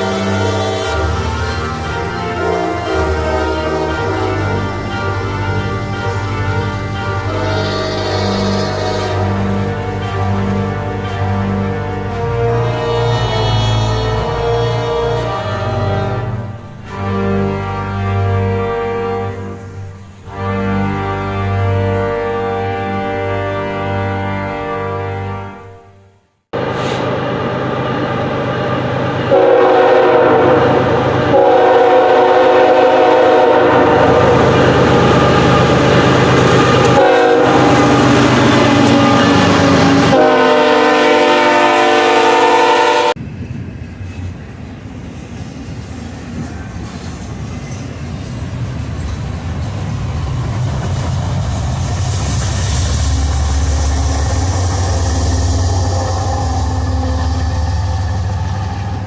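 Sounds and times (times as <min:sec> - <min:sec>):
train rumble: 0:00.0 - 0:24.7, 0:26.5 - 0:59.0
locomotive air horn blasts: 0:00.0 - 0:26.1, 0:29.3 - 0:43.2, 0:53.0 - 0:59.0
low engine drone: 0:49.9 - 0:59.0.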